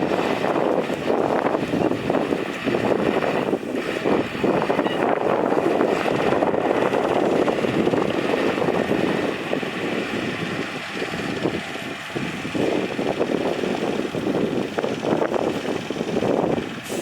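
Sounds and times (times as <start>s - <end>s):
heavy diesel engine under load: 0.0s - 17.0s.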